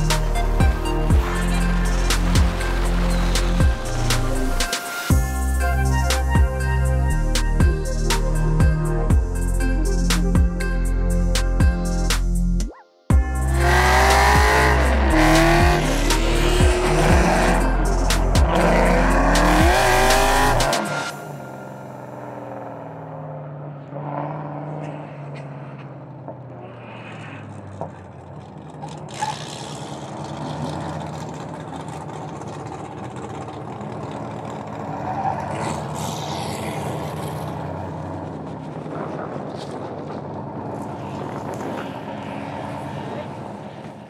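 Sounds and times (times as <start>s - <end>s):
car engines running: 0.0s - 12.4s, 13.1s - 44.0s
wind and tyre noise: 11.6s - 44.0s.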